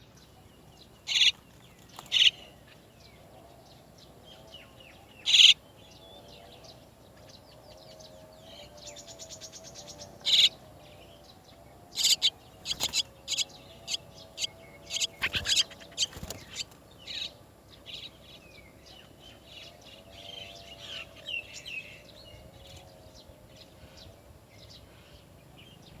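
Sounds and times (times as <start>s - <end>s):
starlings calling sharply: 1.1s - 1.4s, 2.1s - 2.4s, 5.2s - 5.6s, 10.1s - 10.6s, 11.9s - 17.3s
fast bird rattle: 12.0s - 13.4s, 14.9s - 16.7s.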